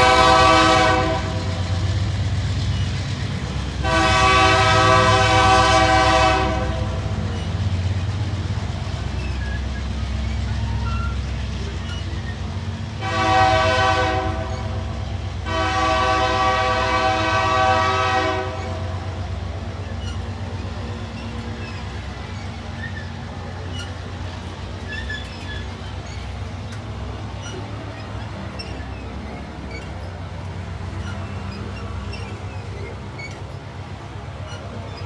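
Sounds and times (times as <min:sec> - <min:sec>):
locomotive horn blasts: 0:00.0 - 0:02.0, 0:03.7 - 0:07.3, 0:13.0 - 0:19.5
low rumble of passing train: 0:00.0 - 0:35.0.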